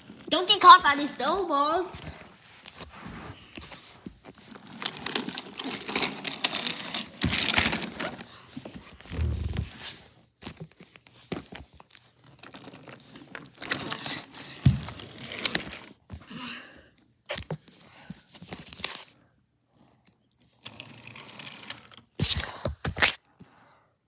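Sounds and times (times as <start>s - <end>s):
toys rustling and crinkling: 0.0s - 16.1s.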